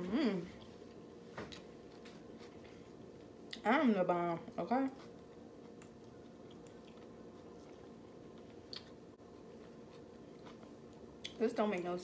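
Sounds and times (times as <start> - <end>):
low room hum: 0.0 - 12.0
person chewing food: 0.5 - 3.6, 4.9 - 11.4.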